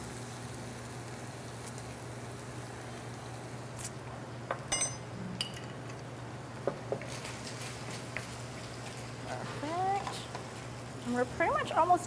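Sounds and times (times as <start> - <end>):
stir fry sizzling in a pan: 0.0 - 4.0, 6.6 - 12.0
metal spoon clinking on pan: 4.7 - 5.8.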